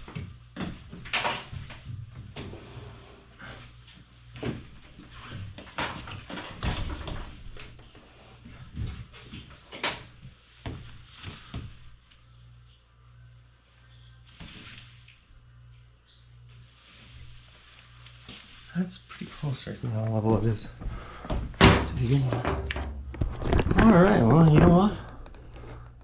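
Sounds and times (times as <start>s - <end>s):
washing machine knocks and clunks: 21.4s - 23.0s.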